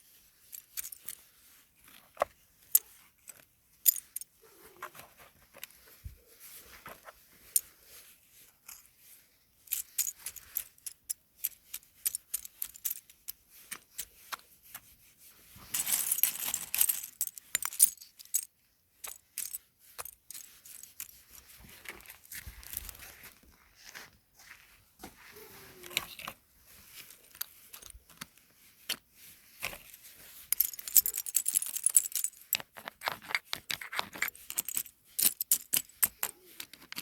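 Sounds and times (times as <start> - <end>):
small hard objects clicking: 30.5 - 37.0.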